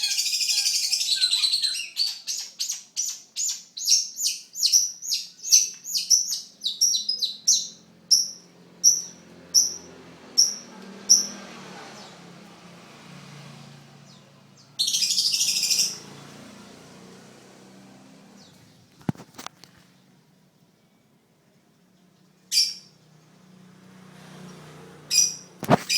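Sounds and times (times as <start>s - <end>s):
shrike chirping and chattering: 0.0s - 11.4s, 14.8s - 16.0s, 25.1s - 25.9s.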